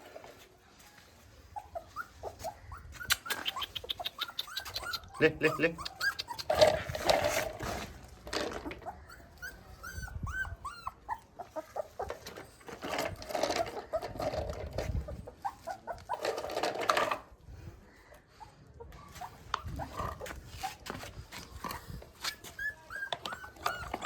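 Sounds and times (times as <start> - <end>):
puppy whimpering: 1.5 - 7.5, 8.6 - 16.7, 18.4 - 21.1, 21.7 - 24.0.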